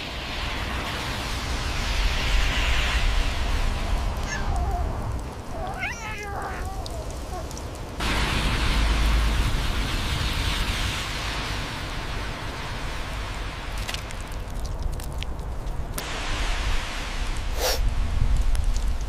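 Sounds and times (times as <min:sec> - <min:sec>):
background hiss: 0:00.0 - 0:19.0
cat meowing: 0:04.2 - 0:07.5.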